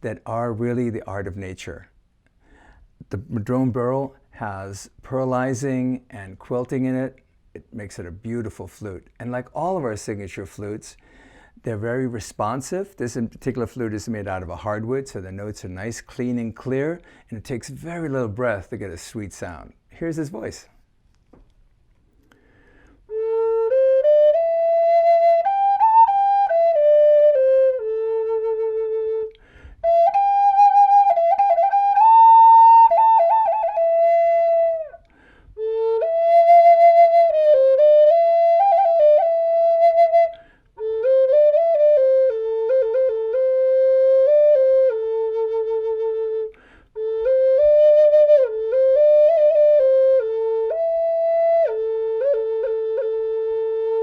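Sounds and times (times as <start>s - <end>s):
solo flute melody: 23.1s - 54.0s.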